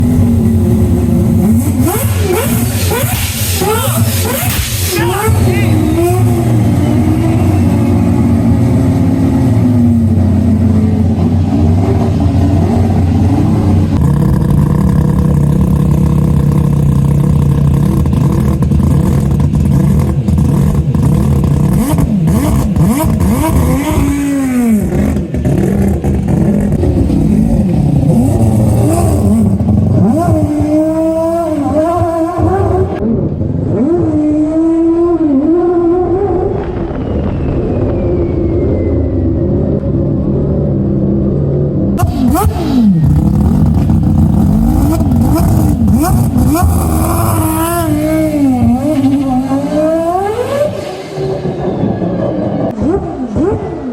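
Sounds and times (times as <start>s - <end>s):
car engine revving: 0.0s - 37.6s, 39.5s - 53.9s.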